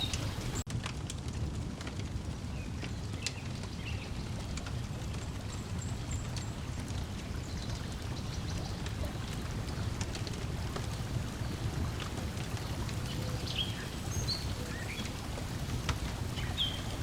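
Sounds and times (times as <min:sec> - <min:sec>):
bird chirps: 0:00.0 - 0:00.6, 0:16.4 - 0:17.0
water lapping against shore: 0:00.0 - 0:00.7, 0:03.0 - 0:17.0
wood fire crackling and popping: 0:00.0 - 0:17.0.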